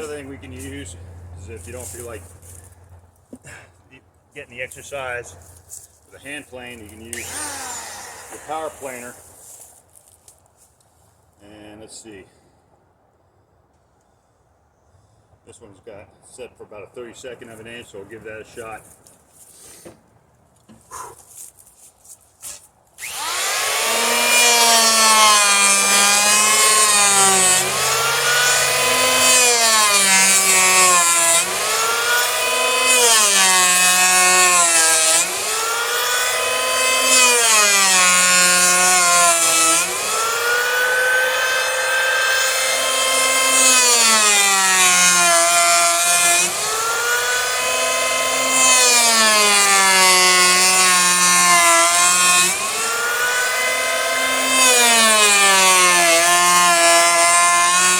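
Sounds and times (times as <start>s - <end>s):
electric planer whining: 7.1s - 9.3s, 23.0s - 57.9s.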